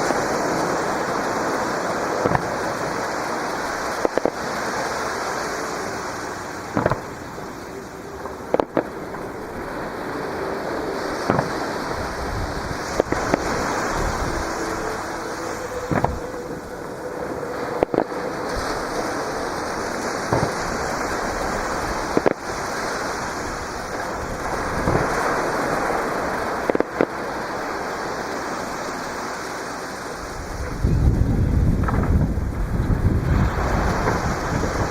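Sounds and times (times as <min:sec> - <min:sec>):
fireworks bangs: 0:00.0 - 0:27.6
surf breaking on shore: 0:00.0 - 0:34.9.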